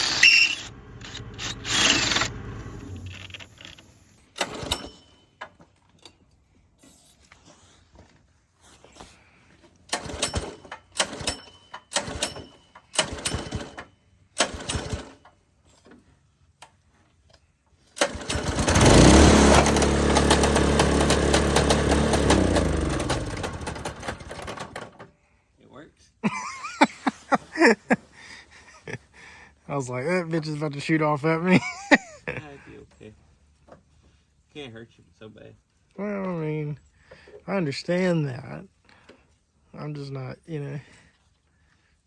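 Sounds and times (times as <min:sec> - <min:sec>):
lawnmower engine starting and running: 0:00.0 - 0:06.0, 0:09.6 - 0:16.1, 0:17.8 - 0:25.2.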